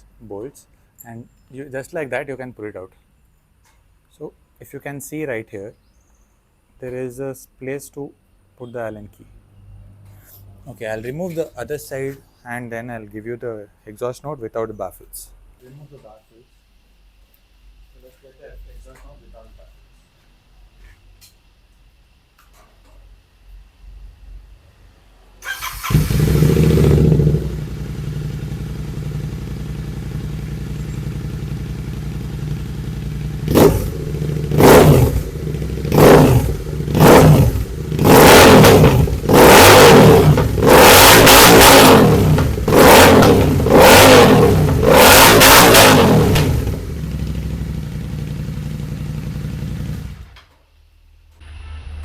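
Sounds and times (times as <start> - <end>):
motorcycle engine idling and revving: 25.5 - 50.4.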